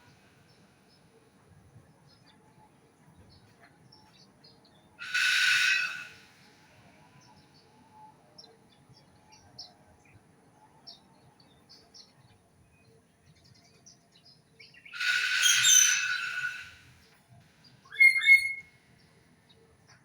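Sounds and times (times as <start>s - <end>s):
faint high bird chirps: 5.0s - 6.2s, 14.6s - 16.8s, 17.9s - 18.7s
loud bird call: 5.0s - 6.2s, 14.9s - 16.8s, 17.9s - 18.6s.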